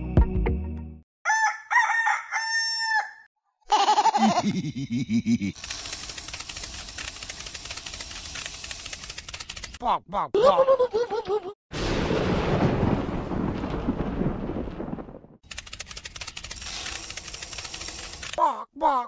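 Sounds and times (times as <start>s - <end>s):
rooster crowing: 1.2s - 3.3s.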